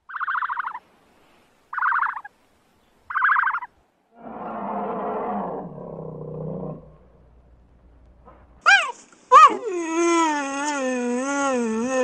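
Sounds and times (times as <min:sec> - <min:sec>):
animal calls of rapid pulses: 0:00.1 - 0:00.8, 0:01.7 - 0:02.3, 0:03.1 - 0:06.9
bear growling: 0:04.2 - 0:07.4.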